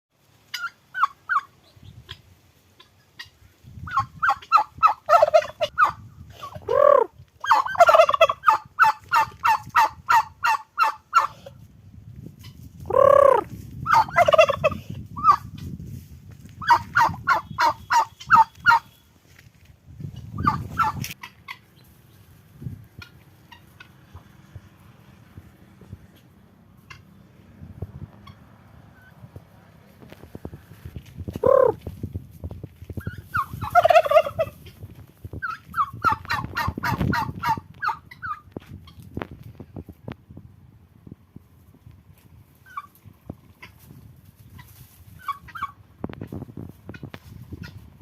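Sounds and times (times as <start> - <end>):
turkeys gobbling: 0.5 - 11.5, 12.9 - 15.4, 16.6 - 19.0, 20.2 - 22.2, 23.0 - 24.4, 26.1 - 27.2, 31.4 - 31.8, 33.0 - 34.8, 35.4 - 39.0, 42.6 - 43.8, 44.6 - 45.8.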